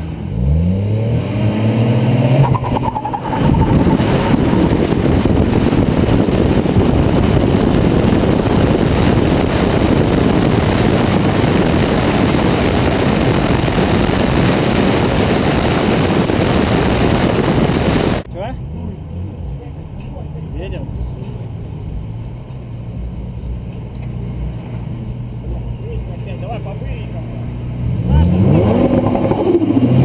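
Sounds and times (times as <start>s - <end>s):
car engine revving: 0.0s - 19.7s, 27.2s - 30.0s
wind rushing: 2.0s - 18.2s.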